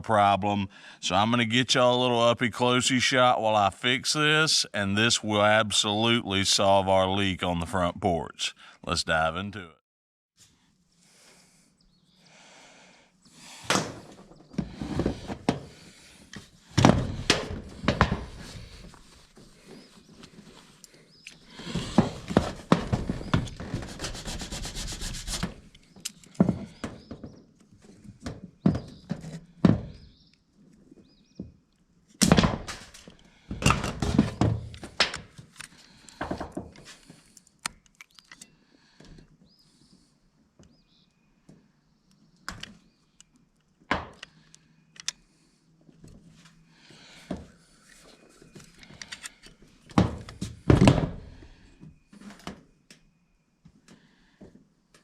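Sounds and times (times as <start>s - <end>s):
rubbing scrapes: 21.5s - 25.7s
thunks and knocks on metal roof: 21.8s - 24.2s, 33.6s - 35.2s, 50.0s - 51.4s.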